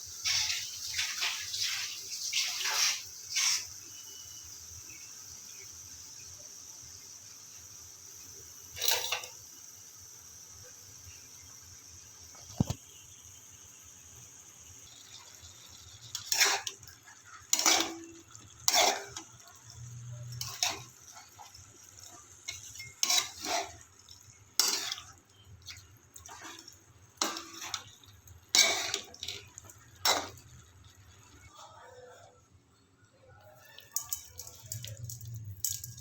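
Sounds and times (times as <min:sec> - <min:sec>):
cookware and utensil clattering: 0:08.7 - 0:09.5, 0:14.9 - 0:30.6, 0:33.8 - 0:36.0.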